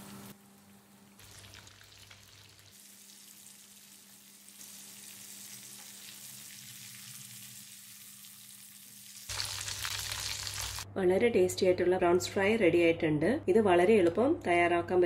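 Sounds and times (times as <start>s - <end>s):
prawns sizzling in hot oil: 0.0s - 10.9s.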